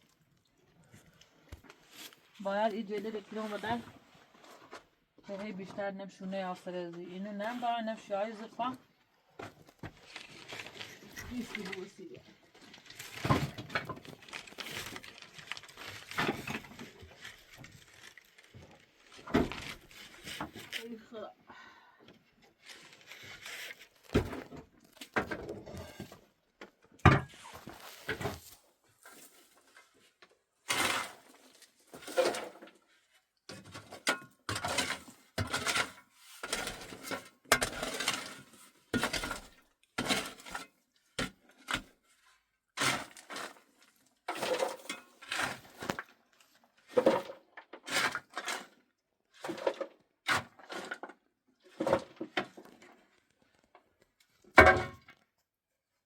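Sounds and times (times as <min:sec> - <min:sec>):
objects breaking: 0:13.0 - 0:18.2.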